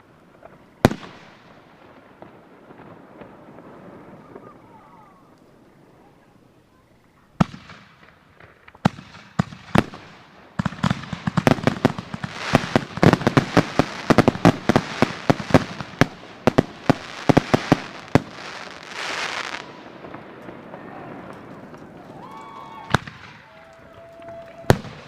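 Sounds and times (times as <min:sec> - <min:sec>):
firework bangs and crackles: 0:00.0 - 0:25.0
firework hiss: 0:08.9 - 0:21.0.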